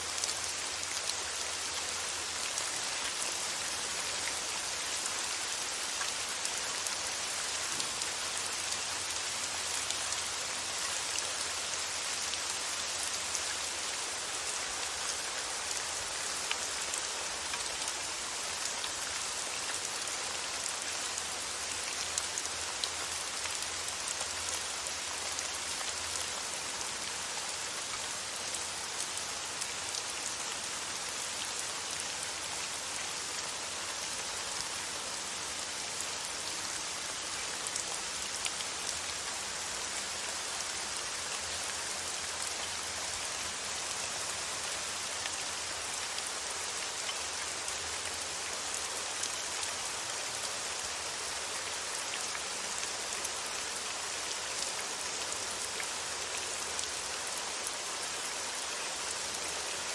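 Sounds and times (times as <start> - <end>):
faint raindrop ticks: 5.9 - 10.2.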